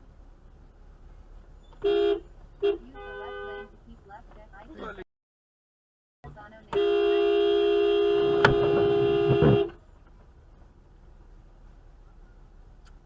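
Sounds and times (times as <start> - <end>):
car horn blaring: 1.8 - 3.8, 6.7 - 9.8.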